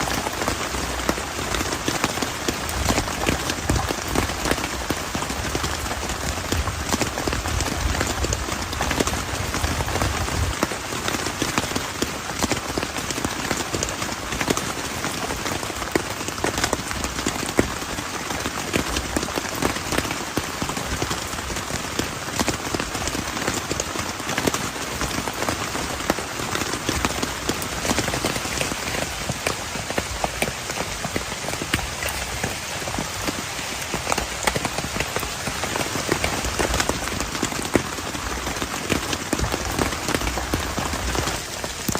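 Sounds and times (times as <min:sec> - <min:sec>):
heavy rain: 0:00.0 - 0:41.9.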